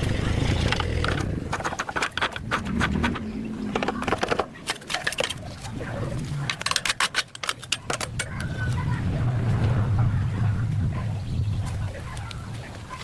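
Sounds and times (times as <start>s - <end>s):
low hum: 0.0s - 7.0s, 8.0s - 12.3s
sharp clicks and clatter: 0.0s - 8.9s.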